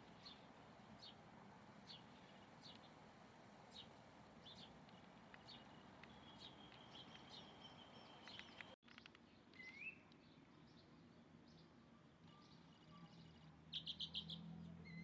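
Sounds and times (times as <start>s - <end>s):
high bird chirps: 13.7s - 15.0s.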